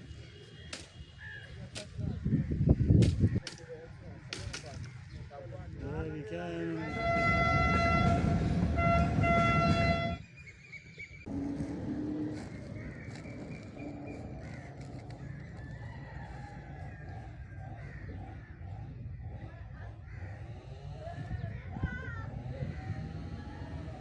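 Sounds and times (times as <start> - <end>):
low engine rumble: 5.3 - 10.2, 11.2 - 24.0
loud horn blast: 6.8 - 10.2.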